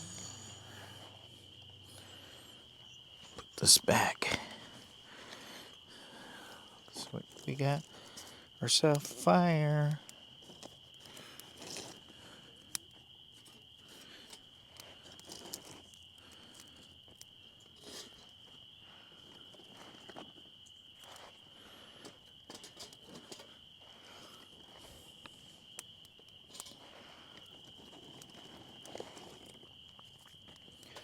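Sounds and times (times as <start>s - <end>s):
crickets chirping: 0.0s - 31.0s
clicks and rustles: 12.7s - 18.2s.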